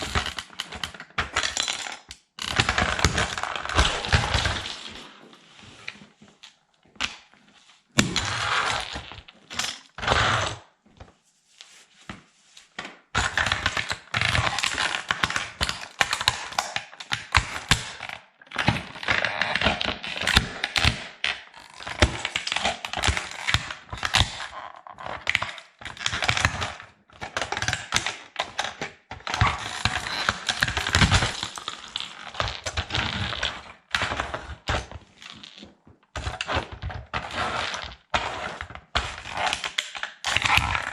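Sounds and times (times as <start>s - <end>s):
plastic toy cracking underfoot: 0.0s - 4.8s, 27.3s - 40.9s.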